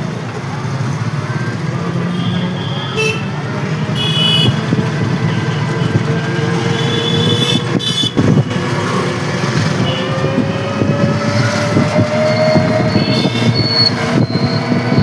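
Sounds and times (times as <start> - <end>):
road traffic noise: 0.0 - 15.0
car horn toots: 2.3 - 3.3, 3.9 - 4.7, 6.7 - 8.4, 9.8 - 10.3.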